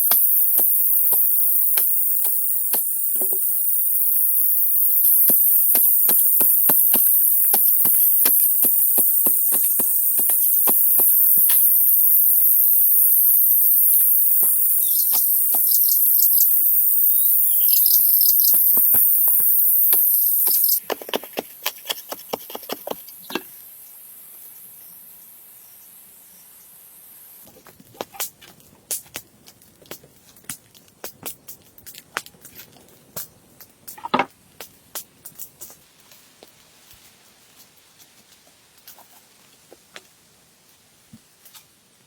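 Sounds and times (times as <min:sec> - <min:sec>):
hand tool chopping wood: 0:00.0 - 0:03.4, 0:05.0 - 0:11.9, 0:18.3 - 0:23.0
high-pitched insect chorus: 0:00.0 - 0:20.8.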